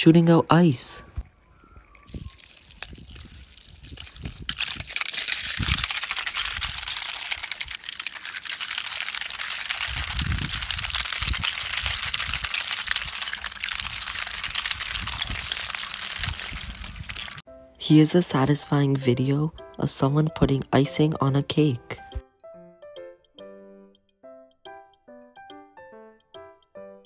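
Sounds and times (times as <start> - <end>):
hose spraying ice: 2.1 - 17.4.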